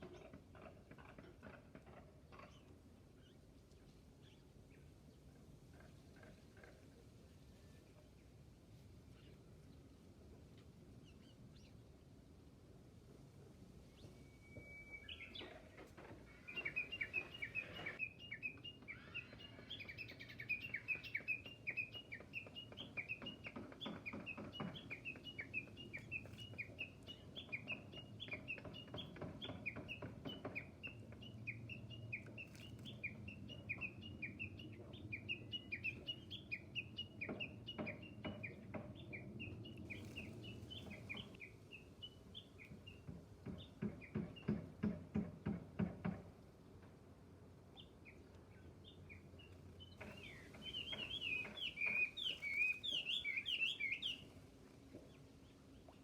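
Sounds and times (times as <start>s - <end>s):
bird chirping: 13.8s - 44.6s, 47.7s - 56.0s.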